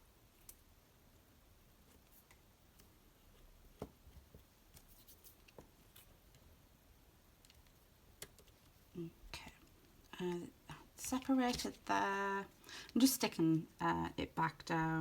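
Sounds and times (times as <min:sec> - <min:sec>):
faint taps and rustles: 0:01.8 - 0:06.5.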